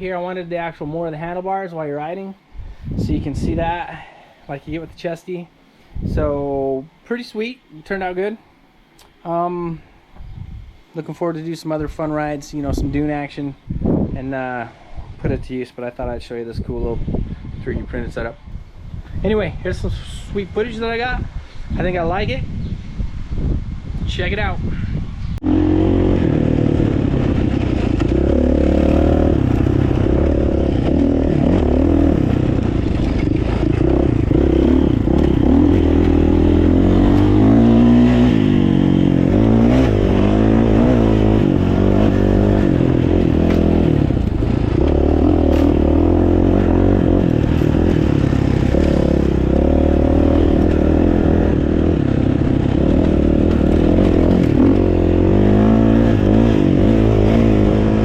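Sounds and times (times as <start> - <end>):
dirt bike engine revving: 25.4 - 58.0.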